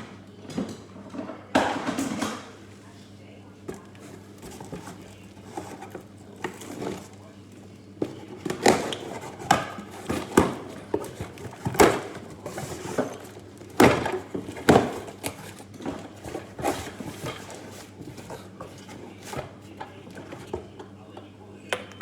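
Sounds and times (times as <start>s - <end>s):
hard objects knocking and clattering: 8.0s - 20.9s.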